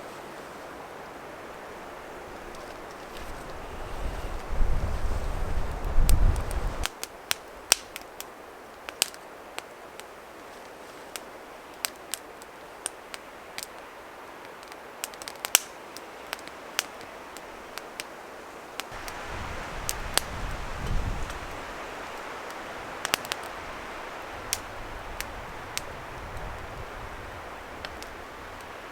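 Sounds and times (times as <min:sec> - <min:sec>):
wood fire crackling: 0:00.1 - 0:28.9
wind on microphone: 0:01.9 - 0:06.9, 0:18.9 - 0:28.9.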